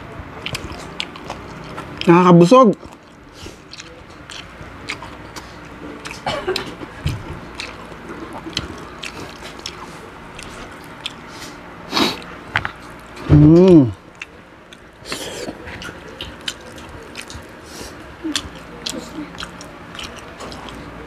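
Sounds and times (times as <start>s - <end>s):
man chewing and mouth sounds: 0.0s - 21.0s.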